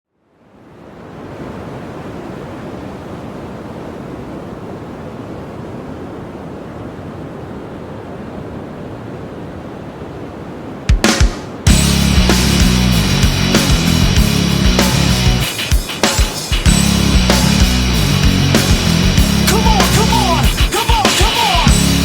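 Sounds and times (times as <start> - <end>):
wind: 0.0 - 11.7
ocean surf breaking: 0.4 - 22.0.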